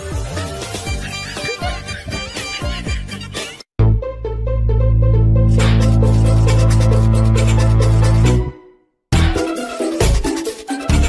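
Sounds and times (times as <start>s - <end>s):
electronic music with steady bass: 5.2s - 8.6s, 9.2s - 11.0s
tune with a beat: 5.4s - 11.0s.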